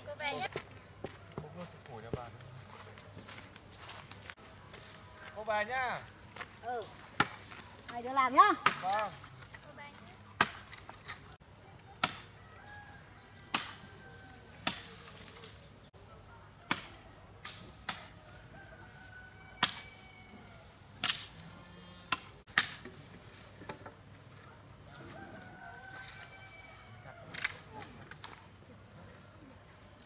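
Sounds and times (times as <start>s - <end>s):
firewood being chopped: 6.8s - 9.6s, 10.4s - 11.2s, 11.9s - 12.4s, 13.5s - 14.0s, 14.6s - 15.5s, 16.7s - 18.2s, 19.5s - 20.0s, 21.0s - 21.4s, 22.1s - 24.0s.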